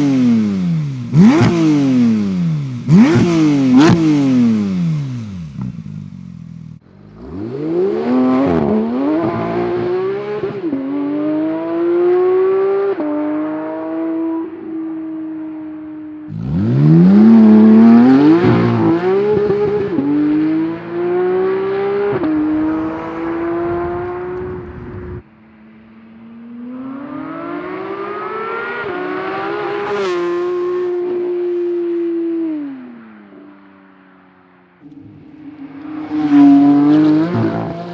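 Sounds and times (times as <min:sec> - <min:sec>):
sports car accelerating past: 0:16.3 - 0:25.2, 0:26.2 - 0:33.9, 0:34.8 - 0:37.9.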